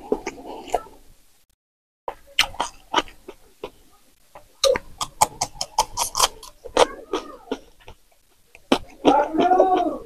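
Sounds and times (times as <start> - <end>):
crunchy chewing: 0.0 - 1.0, 2.1 - 10.0
wet mouth clicks: 2.1 - 9.9.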